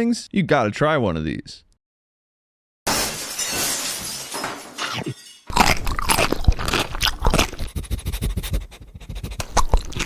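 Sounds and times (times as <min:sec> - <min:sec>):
crunchy chewing: 0:05.5 - 0:10.0.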